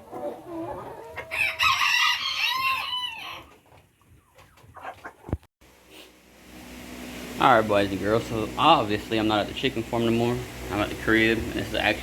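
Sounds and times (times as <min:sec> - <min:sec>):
chickens clucking: 0:00.0 - 0:05.5
roosters crowing: 0:00.3 - 0:03.6.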